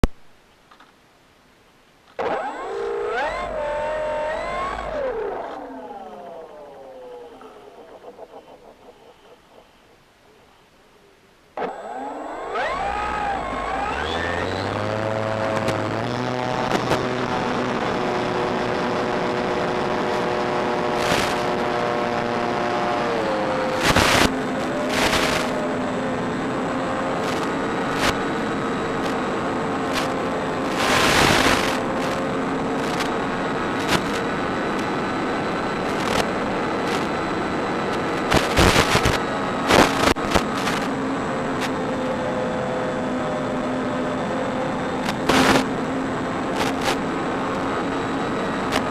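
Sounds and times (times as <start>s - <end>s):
model plane motor whine: 2.2s - 10.0s, 11.6s - 48.9s
loud rushing noise bursts: 23.7s - 25.9s, 38.0s - 40.9s, 45.0s - 45.8s.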